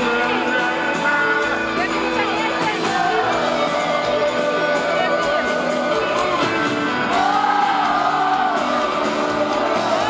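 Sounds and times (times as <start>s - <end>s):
live band music: 0.0s - 10.0s
people singing: 2.4s - 10.0s
crowd shouting: 2.5s - 10.0s.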